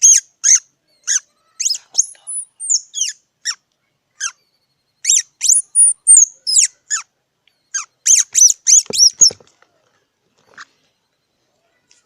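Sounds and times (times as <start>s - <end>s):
squirrel squeaking chirps: 0.0s - 9.4s.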